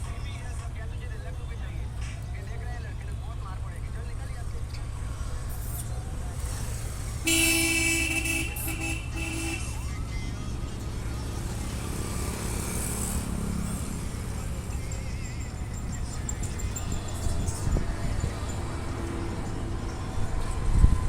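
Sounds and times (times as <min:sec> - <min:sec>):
horn tooting: 0:07.2 - 0:10.0.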